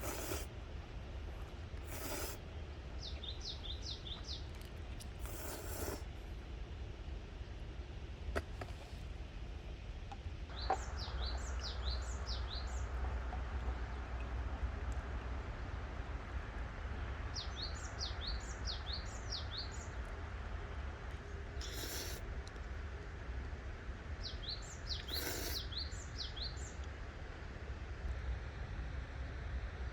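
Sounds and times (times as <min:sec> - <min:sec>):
songbird singing: 0:01.9 - 0:06.0, 0:10.5 - 0:13.0, 0:17.4 - 0:20.0, 0:24.2 - 0:26.8.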